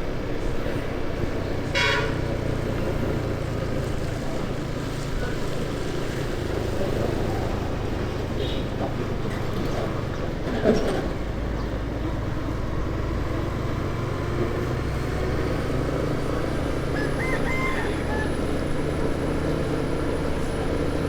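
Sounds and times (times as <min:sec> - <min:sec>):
road and wind noise: 0:00.0 - 0:21.0
vehicle horn tooting: 0:01.7 - 0:02.5.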